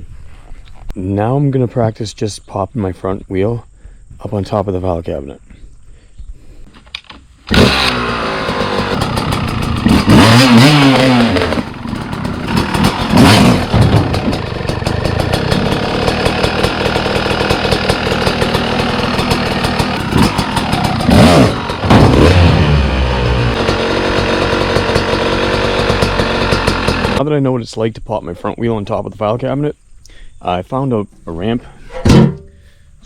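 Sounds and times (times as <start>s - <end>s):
dirt bike engine revving: 7.5s - 27.2s.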